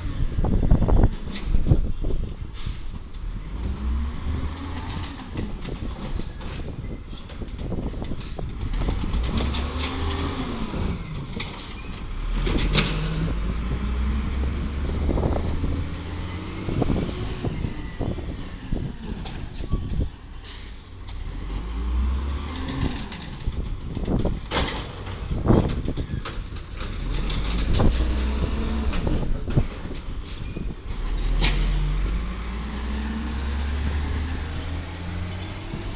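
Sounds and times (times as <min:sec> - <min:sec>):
diesel engine revving: 0:02.6 - 0:06.2, 0:08.0 - 0:35.9.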